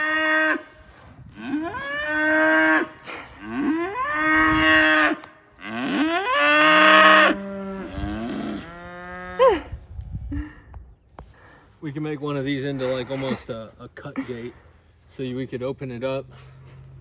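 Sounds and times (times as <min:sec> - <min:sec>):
cattle mooing: 0:01.4 - 0:09.7.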